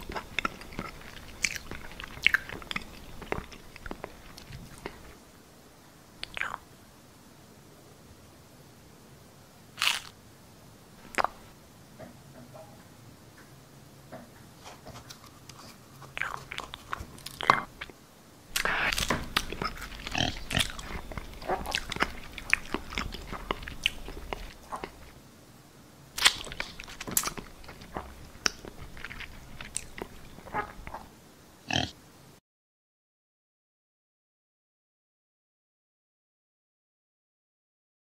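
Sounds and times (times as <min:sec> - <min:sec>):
food crunching and chewing: 0:00.0 - 0:05.2, 0:06.2 - 0:06.6, 0:09.8 - 0:10.2, 0:11.0 - 0:11.5, 0:15.0 - 0:25.2, 0:26.1 - 0:31.1.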